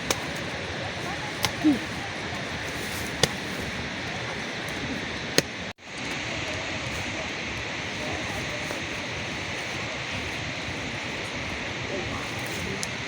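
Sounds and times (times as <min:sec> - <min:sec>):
heavy rain hiss: 0:00.0 - 0:13.0.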